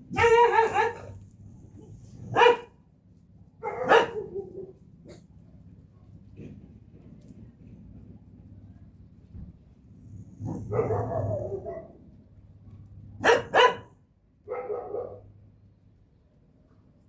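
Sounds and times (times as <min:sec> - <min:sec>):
dog barking: 0:00.1 - 0:01.2, 0:02.2 - 0:02.8, 0:03.6 - 0:05.2, 0:10.5 - 0:12.0, 0:13.2 - 0:15.3.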